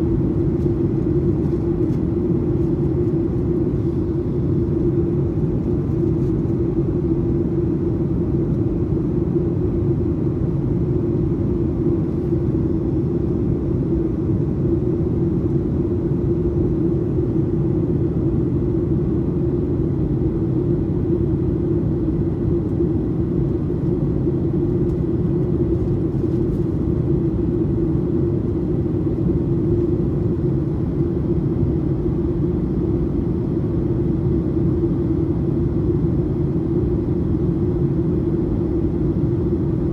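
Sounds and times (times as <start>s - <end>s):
airplane cabin drone: 0.0s - 39.9s
constant low hum: 0.0s - 39.9s.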